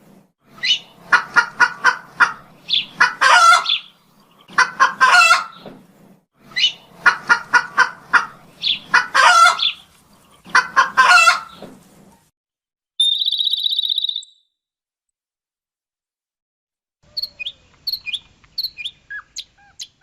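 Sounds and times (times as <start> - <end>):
chicken clucking: 0.6 - 5.7, 6.6 - 12.2
small bird high trill: 13.0 - 14.6.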